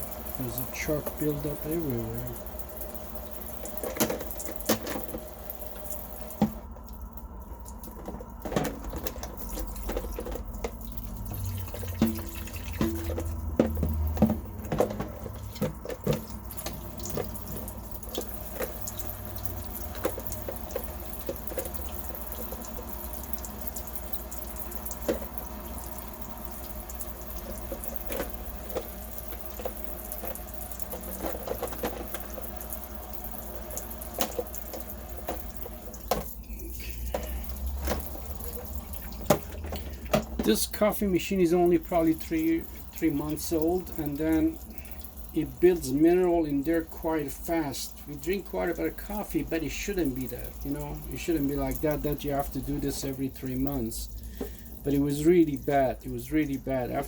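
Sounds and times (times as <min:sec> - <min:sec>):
water running in a sink: 0:00.0 - 0:57.0
sharp clicks and knocks: 0:11.8 - 0:18.7.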